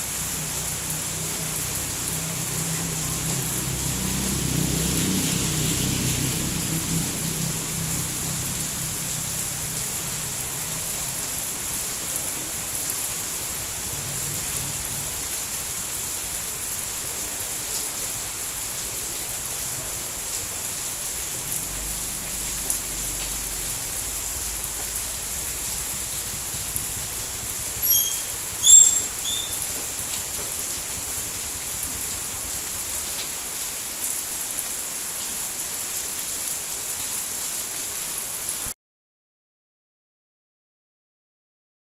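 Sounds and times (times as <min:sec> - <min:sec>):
rain falling: 0:00.0 - 0:38.8
short high-pitched chirps: 0:27.8 - 0:29.6.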